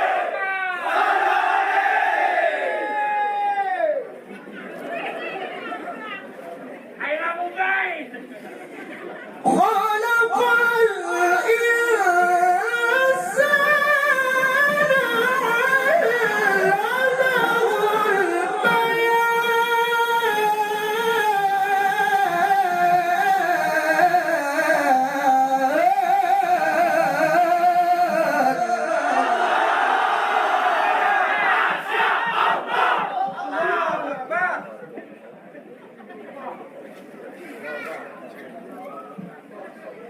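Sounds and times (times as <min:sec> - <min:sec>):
man reciting melodically: 0:09.4 - 0:29.7.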